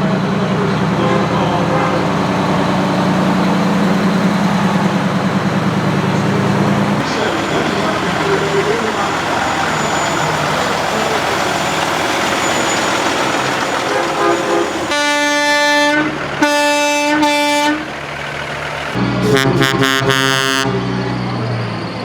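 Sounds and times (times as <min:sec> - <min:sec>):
truck engine rumble: 0:00.0 - 0:22.0
truck air horn blasts: 0:01.0 - 0:03.2, 0:13.8 - 0:17.9, 0:19.0 - 0:20.8.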